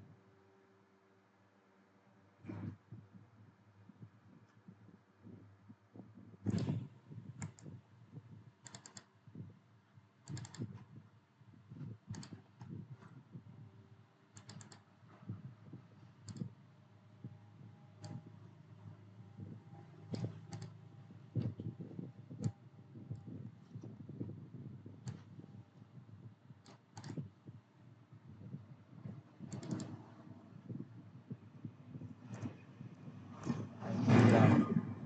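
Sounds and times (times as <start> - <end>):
keyboard and mouse clicks: 6.4 - 7.8, 8.6 - 9.1, 10.2 - 10.9, 11.9 - 13.1, 14.4 - 14.9, 16.2 - 16.6, 18.0 - 18.3, 20.1 - 20.8, 25.0 - 25.4, 26.6 - 27.4, 29.5 - 30.0, 32.3 - 32.6.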